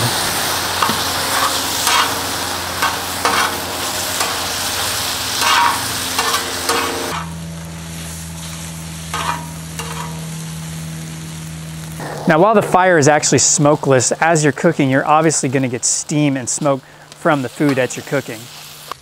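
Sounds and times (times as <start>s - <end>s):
food sizzling in a wok: 0.0s - 12.1s, 15.3s - 19.0s
utensil scraping a wok: 0.8s - 7.4s, 8.4s - 10.4s.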